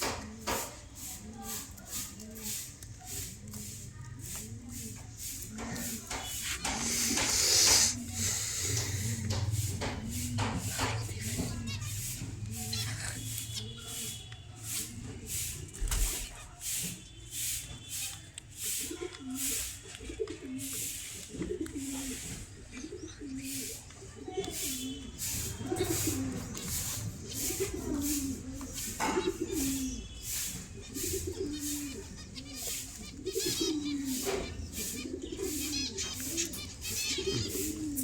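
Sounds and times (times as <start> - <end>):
birds cooing: 0.0 - 16.3, 18.5 - 38.0
high bird chirps: 24.5 - 38.0.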